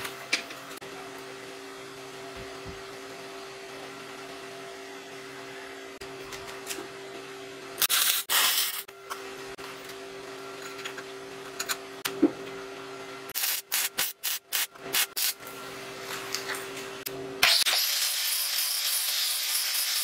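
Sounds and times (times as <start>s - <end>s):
electric arc welding crackle: 7.8s - 8.9s, 13.3s - 15.4s, 17.4s - 20.0s.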